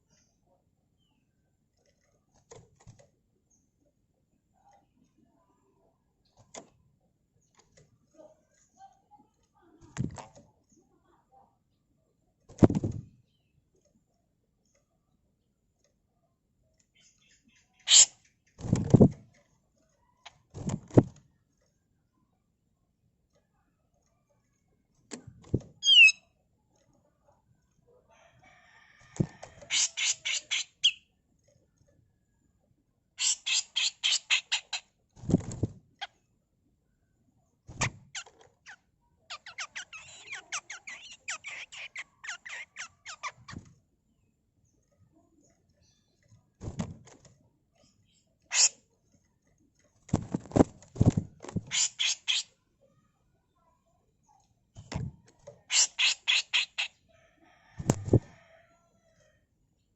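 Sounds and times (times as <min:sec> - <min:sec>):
bulbul harsh rasping calls: 0:17.0 - 0:18.3, 0:25.8 - 0:26.2, 0:29.7 - 0:31.0, 0:33.2 - 0:34.8, 0:48.5 - 0:48.8, 0:51.6 - 0:52.5, 0:55.7 - 0:56.9
bird harsh raspy notes: 0:17.9 - 0:18.2, 0:55.7 - 0:56.9.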